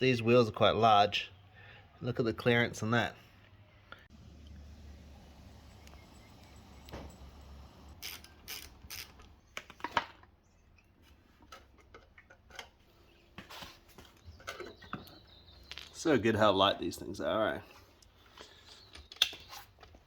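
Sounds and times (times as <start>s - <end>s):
parts and tools clicking: 5.8s - 10.3s.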